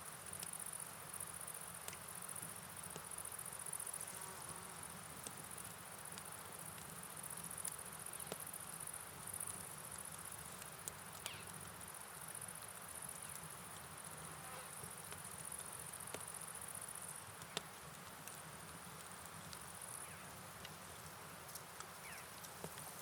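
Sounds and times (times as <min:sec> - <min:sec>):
rain hiss: 0:00.0 - 0:23.0
faint ticks: 0:01.8 - 0:03.3, 0:05.2 - 0:23.0
crickets trilling: 0:05.4 - 0:17.7, 0:19.0 - 0:23.0.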